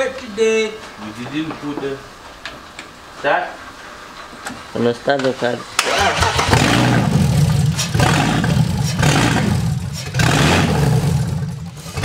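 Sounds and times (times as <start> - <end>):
engine cranking on starter motor: 5.8 - 12.0.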